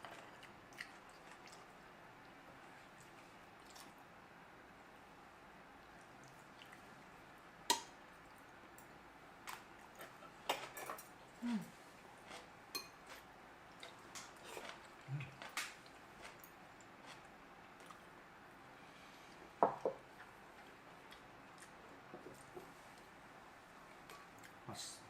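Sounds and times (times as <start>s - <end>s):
utensils clinking against dishes: 10.5s - 11.1s.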